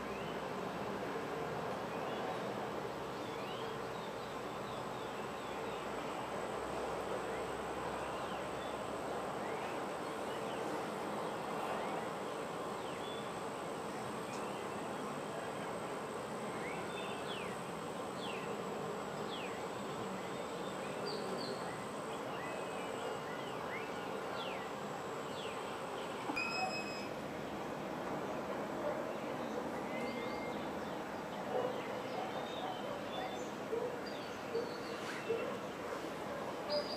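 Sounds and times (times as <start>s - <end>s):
insect drone: 2.6s - 27.9s
thin high whine: 5.7s - 27.4s.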